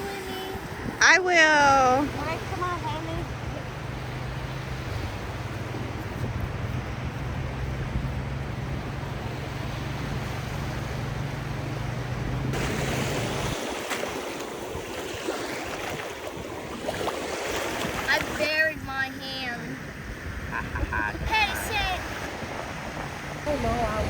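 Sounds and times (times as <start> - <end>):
low steady rumble: 0.0 - 13.6
ocean surf washing on beach: 0.0 - 24.0
wind buffeting microphone: 0.0 - 24.0.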